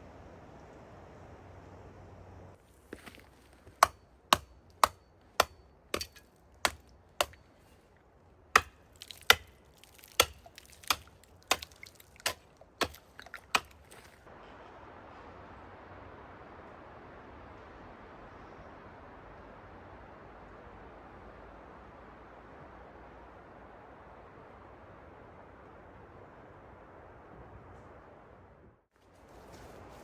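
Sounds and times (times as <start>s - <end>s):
axe chopping wood: 2.9s - 7.9s, 8.5s - 14.3s.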